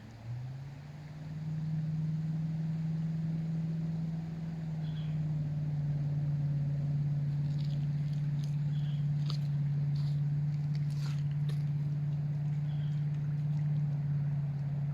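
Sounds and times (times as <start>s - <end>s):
motor running steadily: 0.0s - 14.9s.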